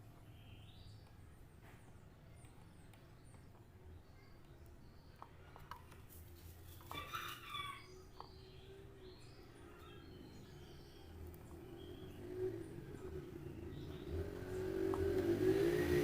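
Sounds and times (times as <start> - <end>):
faint rooster crowing: 6.8 - 8.2.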